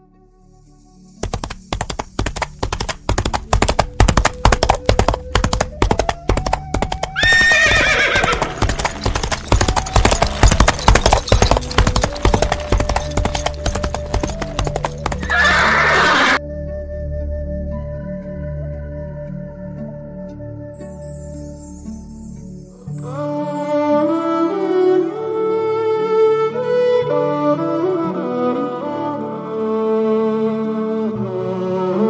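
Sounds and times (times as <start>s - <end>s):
horse hoofbeats: 1.2s - 16.4s
horse whinnying: 6.8s - 16.4s.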